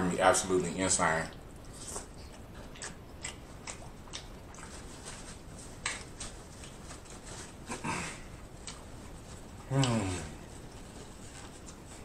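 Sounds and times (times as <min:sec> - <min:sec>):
wet mouth clicks and lip smacks: 0:01.3 - 0:04.9
close chewing: 0:01.3 - 0:07.8, 0:08.4 - 0:12.0.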